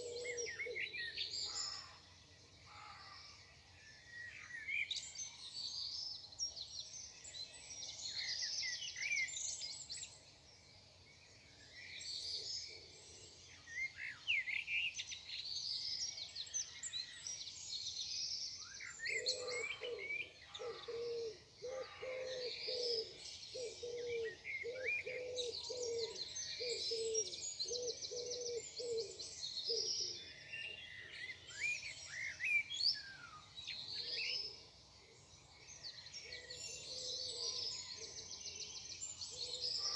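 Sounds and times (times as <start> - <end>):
songbirds chirping: 0.0 - 39.9
low cooing call: 20.9 - 29.2.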